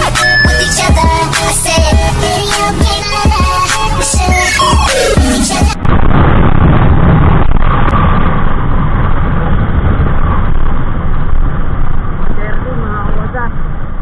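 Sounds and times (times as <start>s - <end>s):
music: 0.0s - 5.8s.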